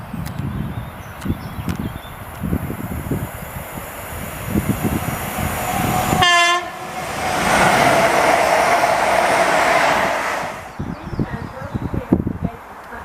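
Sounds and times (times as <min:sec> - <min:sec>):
locomotives rumbling past: 0:02.2 - 0:10.9
diesel locomotive horn blast: 0:04.4 - 0:10.7.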